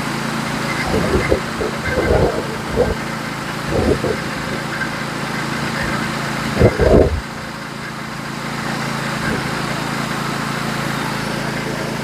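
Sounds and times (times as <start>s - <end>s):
sawmill engine running: 0.0s - 12.0s
low thumps: 0.8s - 4.9s, 6.6s - 7.3s.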